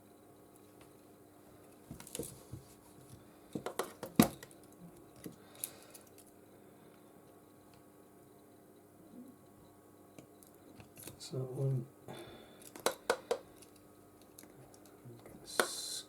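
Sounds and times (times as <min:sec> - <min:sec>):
faint steady hum: 0:00.0 - 0:16.0
small phone parts clicking: 0:12.6 - 0:14.9.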